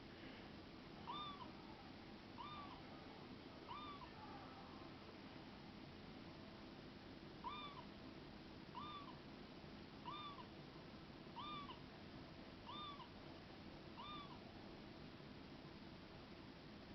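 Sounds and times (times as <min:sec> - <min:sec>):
toy cat meowing: 0:01.0 - 0:01.5, 0:02.4 - 0:02.8, 0:03.7 - 0:04.1, 0:07.4 - 0:07.9, 0:08.8 - 0:09.2, 0:10.0 - 0:10.5, 0:11.4 - 0:11.8, 0:12.7 - 0:13.1, 0:14.0 - 0:14.4.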